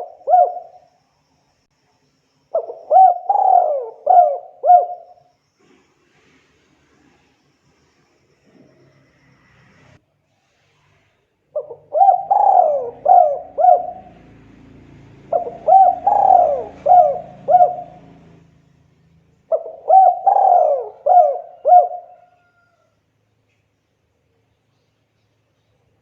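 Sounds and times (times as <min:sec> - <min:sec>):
dove cooing: 0:00.0 - 0:00.8, 0:02.6 - 0:05.2, 0:11.5 - 0:18.5, 0:19.5 - 0:22.7.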